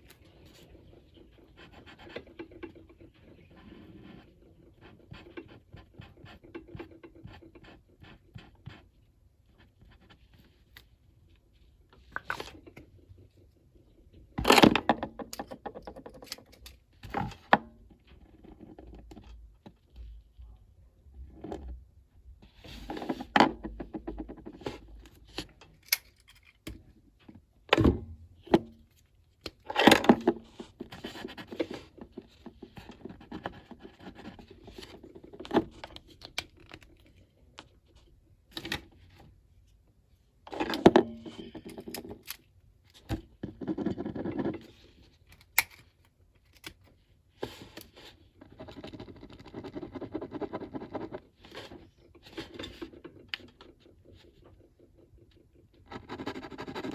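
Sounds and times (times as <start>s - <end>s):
tools clicking and knocking: 14.4s - 16.9s, 25.4s - 26.9s
coloring tool scratching paper: 48.4s - 51.9s, 53.7s - 56.9s.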